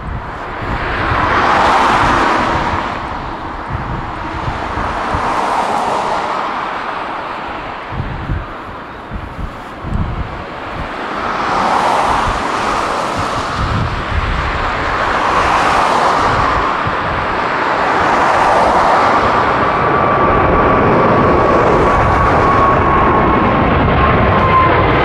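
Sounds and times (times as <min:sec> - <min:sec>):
loud jet engine noise: 0:00.0 - 0:25.0
steady high whine: 0:00.0 - 0:25.0
wind buffeting microphone: 0:00.0 - 0:25.0.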